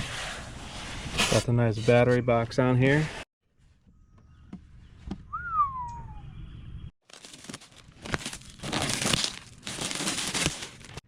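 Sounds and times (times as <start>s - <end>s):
plastic wrap crinkling and tearing: 7.0s - 11.0s.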